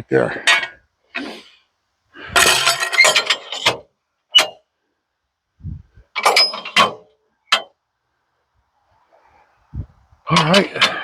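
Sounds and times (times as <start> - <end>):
metallic clanks and knocks: 2.3 - 4.6, 6.1 - 7.8, 10.3 - 11.0.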